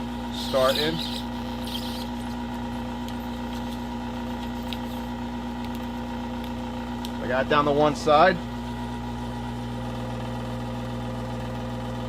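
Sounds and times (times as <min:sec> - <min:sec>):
hot-air gun humming: 0:00.0 - 0:08.8.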